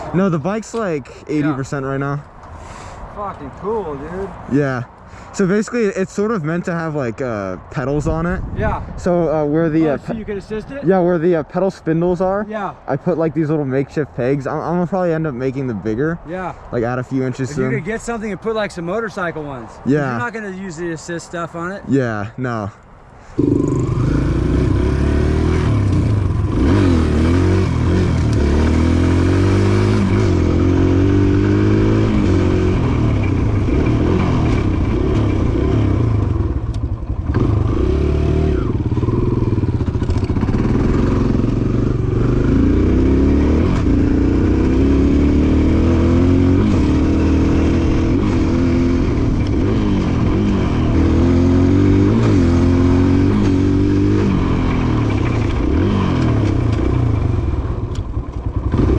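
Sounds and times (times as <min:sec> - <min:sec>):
small motorbike engine revving: 0:23.4 - 0:32.9, 0:37.2 - 0:57.6, 0:58.6 - 0:58.9.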